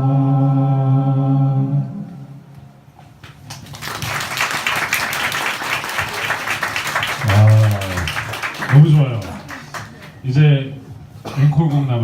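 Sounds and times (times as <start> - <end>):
a cappella chord: 0.0 - 2.3
audience applause: 3.5 - 10.2.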